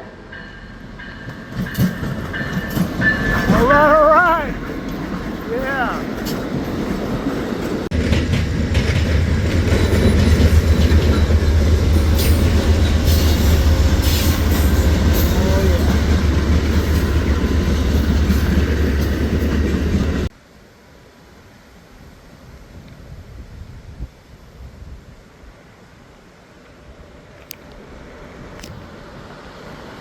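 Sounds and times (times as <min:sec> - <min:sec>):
train rolling past: 0:00.0 - 0:20.3, 0:26.8 - 0:30.0.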